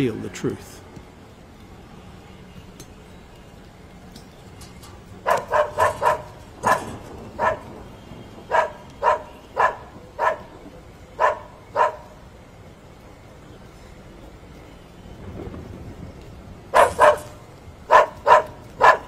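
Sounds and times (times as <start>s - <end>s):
dog barking: 5.2s - 7.7s, 8.5s - 10.5s, 11.2s - 12.2s, 16.7s - 19.0s.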